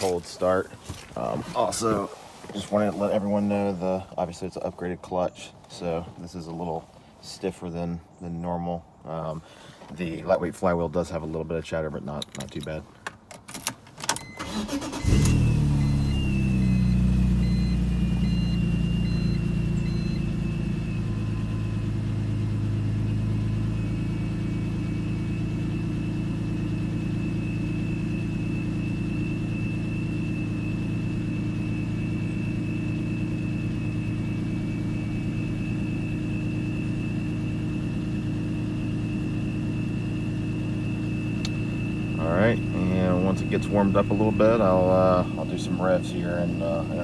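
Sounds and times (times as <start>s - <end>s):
starter motor cranking: 14.0s - 17.8s
car engine idling: 14.4s - 47.0s.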